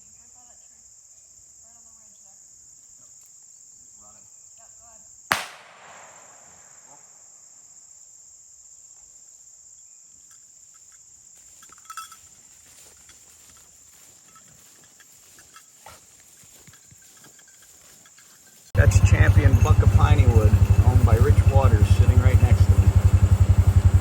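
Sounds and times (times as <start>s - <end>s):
insects chirring: 0.0s - 24.0s
sharp loud crack: 5.3s - 6.7s.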